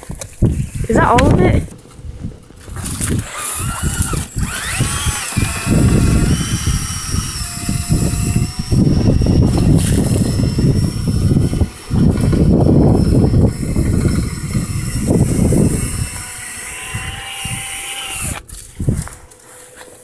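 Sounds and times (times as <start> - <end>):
rods rattling against duct: 0.0 - 19.5
drill spinning brush in duct: 0.0 - 20.0.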